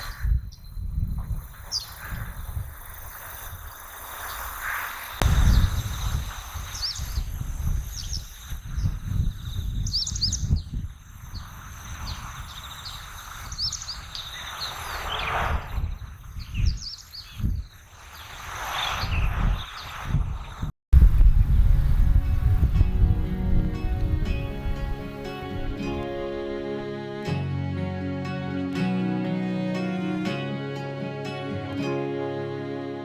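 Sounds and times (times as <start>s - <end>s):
high insect trill: 0.0s - 17.8s
small birds chirping: 0.0s - 20.7s
low rumble: 5.2s - 6.6s, 21.0s - 27.0s.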